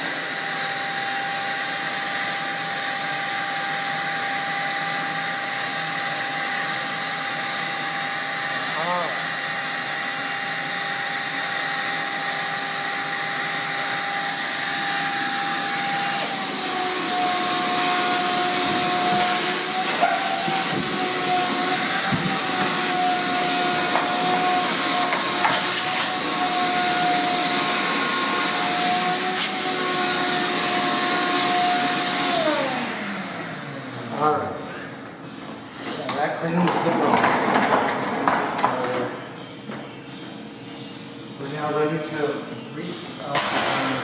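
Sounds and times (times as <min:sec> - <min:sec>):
vacuum cleaner running: 0:00.0 - 0:34.8.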